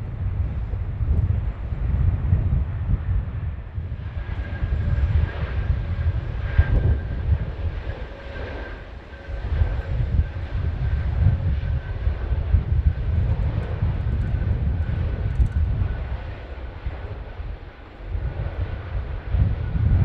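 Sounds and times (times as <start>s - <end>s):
jet engines rumbling: 0.0s - 20.0s
faint high whine: 4.2s - 13.0s.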